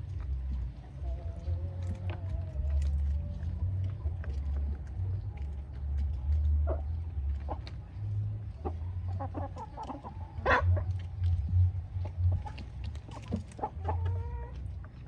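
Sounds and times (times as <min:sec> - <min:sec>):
poultry pecking at feed: 0:00.0 - 0:15.0
wind rumbling on microphone: 0:10.2 - 0:15.0.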